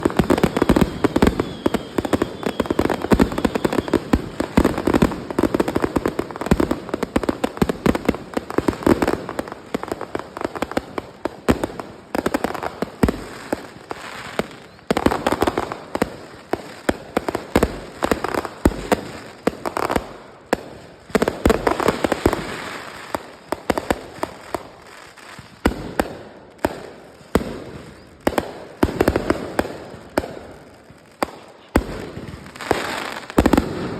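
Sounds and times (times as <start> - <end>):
fireworks bangs and crackles: 0.0 - 33.9.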